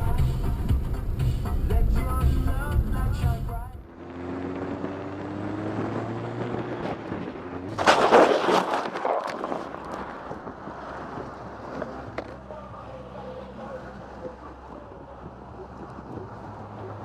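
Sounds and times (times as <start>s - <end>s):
vehicle and road noise hum: 0.0s - 17.0s
vehicle collision crash: 7.7s - 10.3s.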